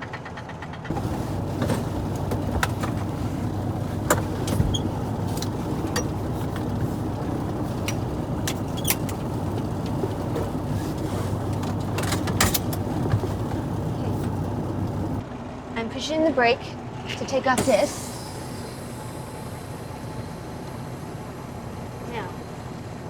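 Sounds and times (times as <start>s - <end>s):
sharp clicks and knocks: 0.9s - 15.2s
diesel truck engine idling: 0.9s - 23.0s.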